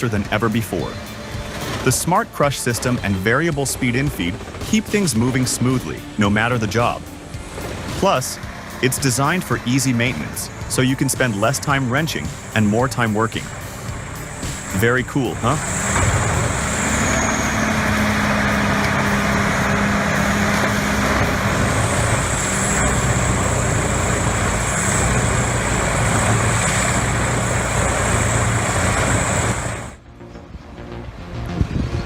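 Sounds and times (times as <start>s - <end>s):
heavy machinery engine hum: 0.0s - 32.0s
thin high whine: 0.7s - 30.0s.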